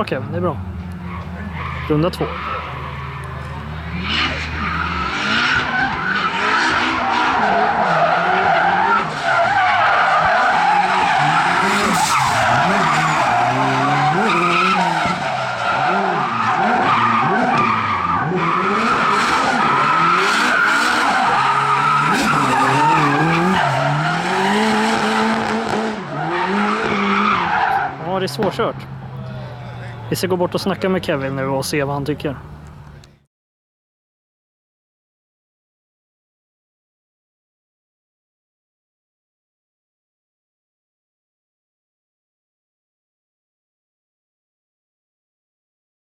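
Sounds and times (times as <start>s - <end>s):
car engine revving: 0.0s - 33.2s
tyres squealing: 0.6s - 17.8s, 18.5s - 24.8s.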